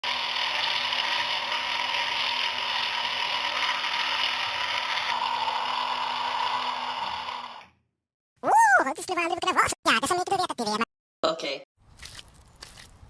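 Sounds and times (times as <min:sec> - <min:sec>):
electric motor and gears whirring: 0:00.0 - 0:07.8.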